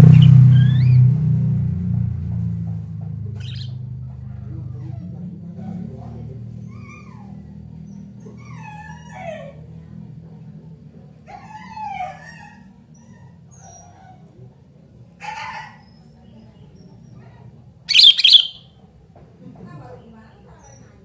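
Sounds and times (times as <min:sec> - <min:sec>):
bird calling liquid notes: 0:00.0 - 0:00.8, 0:17.9 - 0:18.6.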